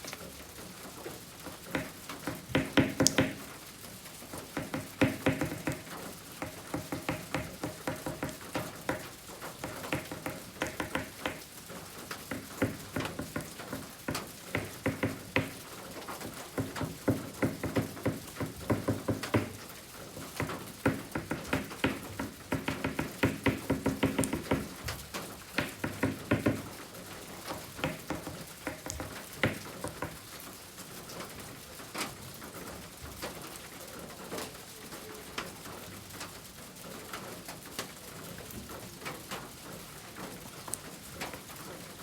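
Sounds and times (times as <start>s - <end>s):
pastel tapping and scraping on paper: 1.6s - 3.6s, 4.4s - 26.8s, 27.5s - 30.2s.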